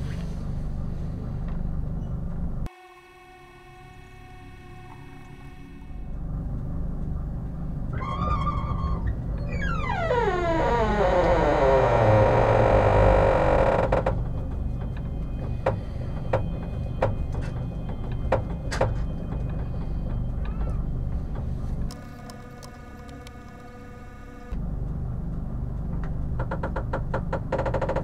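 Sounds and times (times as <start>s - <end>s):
steady hum with held tones: 0.0s - 10.7s
train carriage rumble: 4.7s - 28.0s
sharp knocks and rattles: 13.8s - 22.0s, 25.8s - 28.0s.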